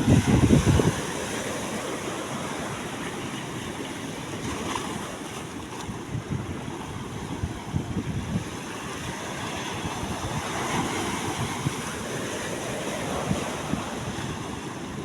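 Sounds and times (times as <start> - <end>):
sea waves washing: 0.0 - 15.0
wind gusts on microphone: 0.0 - 15.0.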